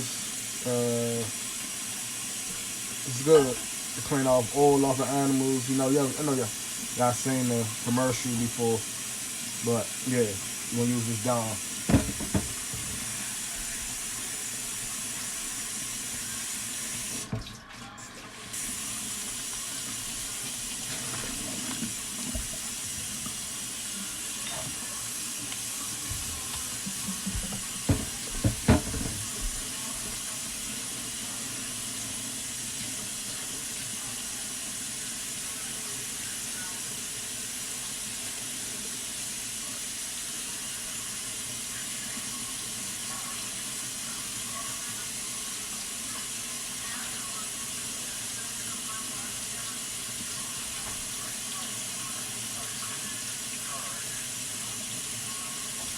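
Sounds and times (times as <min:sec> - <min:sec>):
tap running into sink: 0:11.8 - 0:13.8, 0:16.9 - 0:17.6, 0:20.8 - 0:23.5, 0:25.5 - 0:30.3
sharp knocks and clatters: 0:11.9 - 0:13.0, 0:27.4 - 0:29.2.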